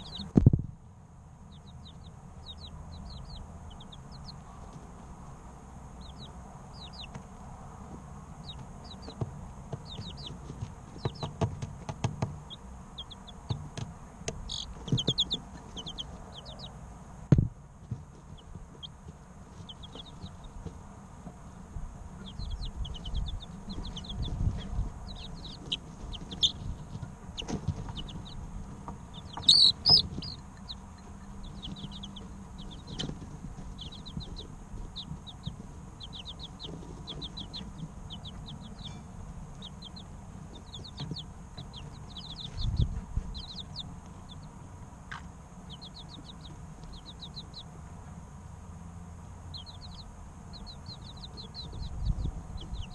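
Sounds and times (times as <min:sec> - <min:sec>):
chicks peeping: 0:00.0 - 0:00.7, 0:01.3 - 0:52.9
low thuds: 0:17.3 - 0:18.8.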